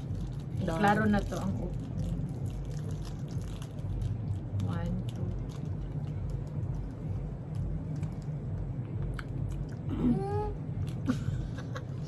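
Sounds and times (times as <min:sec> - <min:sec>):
people chewing crunchy snacks: 0:00.0 - 0:07.0.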